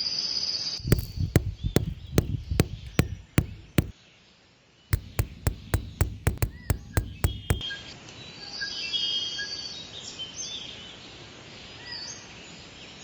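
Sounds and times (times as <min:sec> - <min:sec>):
sharp chopping strikes: 0:00.8 - 0:03.9, 0:05.0 - 0:07.6.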